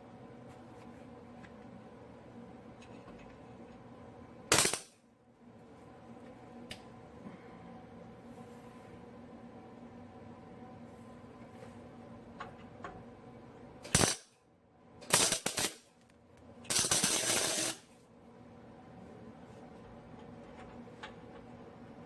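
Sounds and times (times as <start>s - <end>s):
crackling welding arc: 4.5s - 5.0s, 13.8s - 14.4s, 15.0s - 16.0s, 16.6s - 17.9s.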